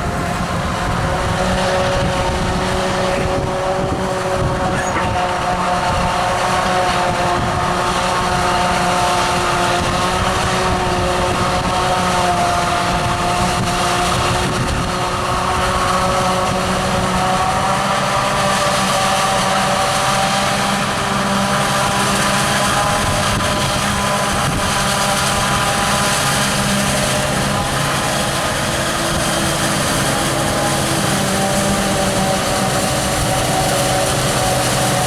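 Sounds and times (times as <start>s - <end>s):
forage harvester running: 0.0s - 35.0s.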